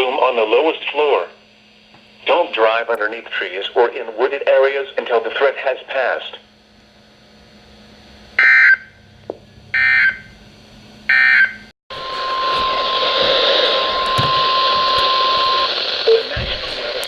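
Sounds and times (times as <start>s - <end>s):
radio hiss: 2.2s - 6.4s, 11.9s - 17.0s
steady single-pitch alert tone: 11.1s - 16.3s
warbling data bursts: 12.0s - 17.0s.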